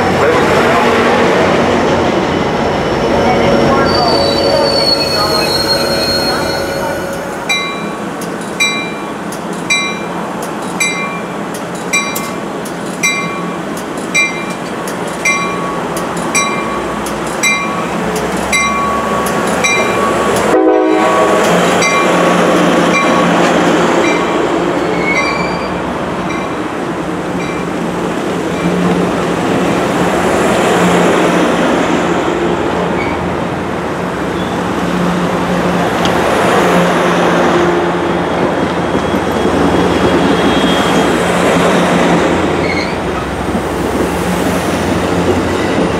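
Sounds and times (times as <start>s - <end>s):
train rumbling along tracks: 0.0s - 45.9s
train bell ringing: 3.1s - 12.4s, 13.0s - 22.3s, 22.9s - 23.3s, 25.0s - 26.6s, 27.4s - 27.7s.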